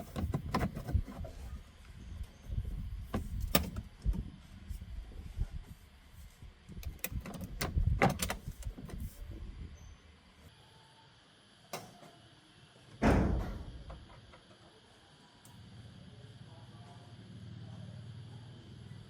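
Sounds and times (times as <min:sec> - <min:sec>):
heavy thud: 0:13.0 - 0:14.0.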